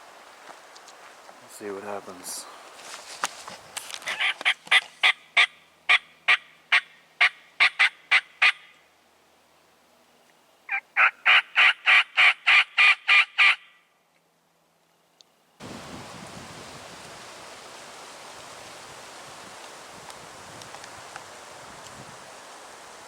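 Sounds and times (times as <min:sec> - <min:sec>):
turkey call yelps: 0:04.0 - 0:08.8, 0:10.7 - 0:13.8.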